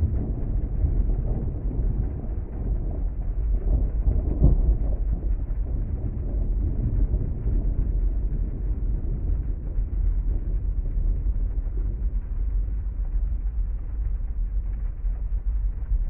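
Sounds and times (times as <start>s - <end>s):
rain on car muffled rumble: 0.0s - 16.0s.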